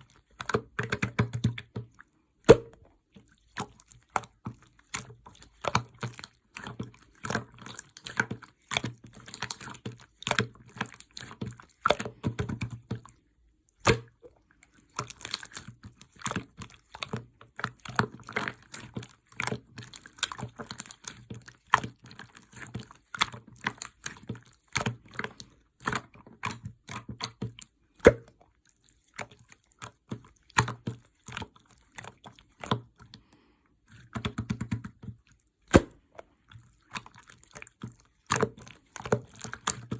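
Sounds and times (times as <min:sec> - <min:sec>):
slime sticky clicks and pops: 0:35.7 - 0:36.0.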